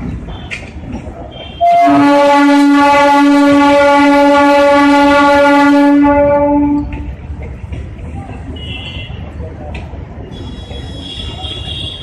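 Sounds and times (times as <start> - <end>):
train horn blast: 1.4 - 7.0.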